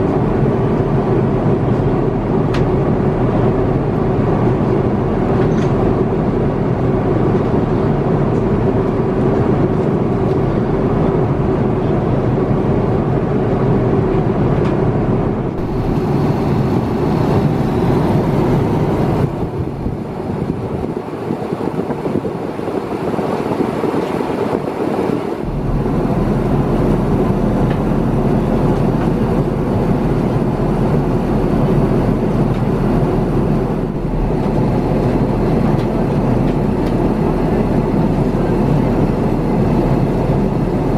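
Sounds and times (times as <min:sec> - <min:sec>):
airplane cabin noise: 0:00.0 - 0:40.9.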